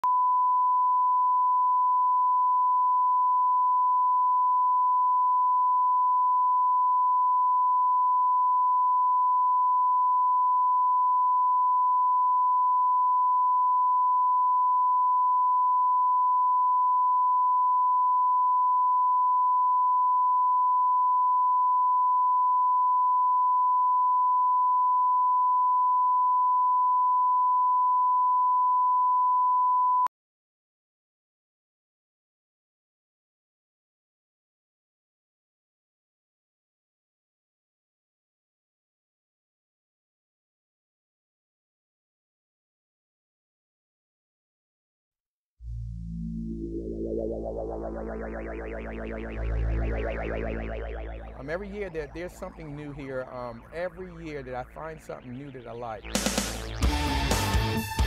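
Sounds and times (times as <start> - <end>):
steady sine-wave reference tone: 0.0 - 30.1, 45.6 - 57.3.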